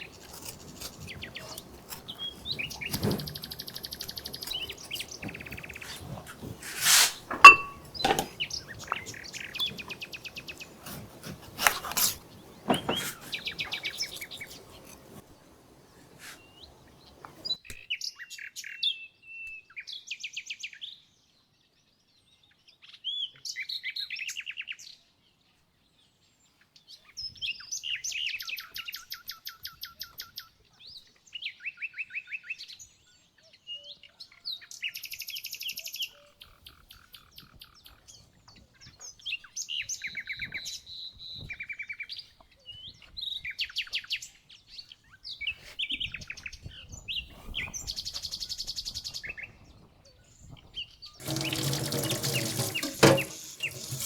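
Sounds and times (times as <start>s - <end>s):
songbirds trilling and chirping: 0.0s - 17.6s, 32.8s - 54.0s.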